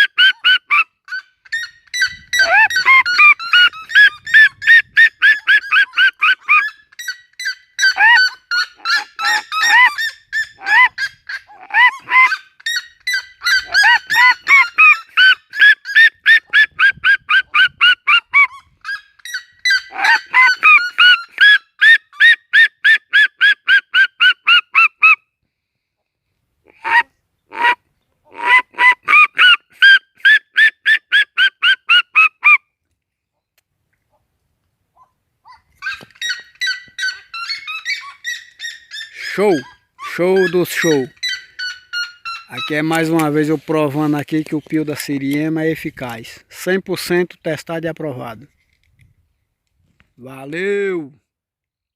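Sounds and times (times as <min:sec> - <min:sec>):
bird yelping calls: 0:00.0 - 0:25.2, 0:35.0 - 0:43.3.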